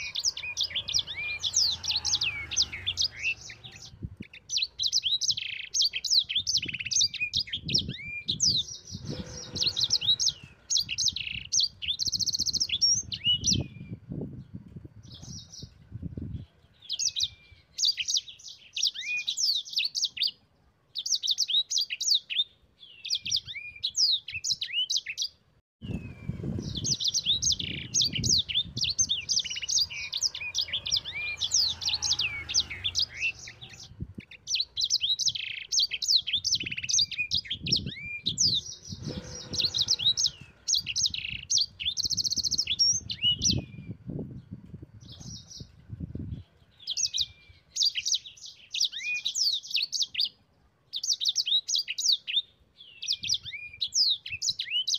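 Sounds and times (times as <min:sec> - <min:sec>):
songbird chattering song: 0:00.0 - 0:54.9.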